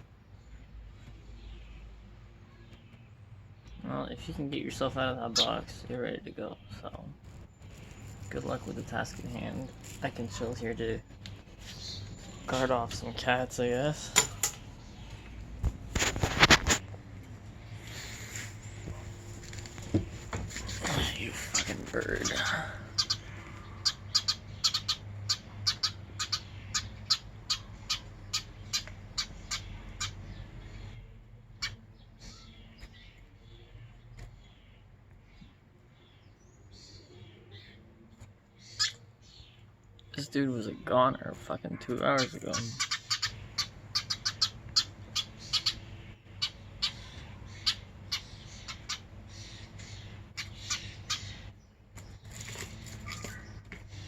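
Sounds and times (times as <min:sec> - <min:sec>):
bird chirping: 0:00.0 - 0:54.0.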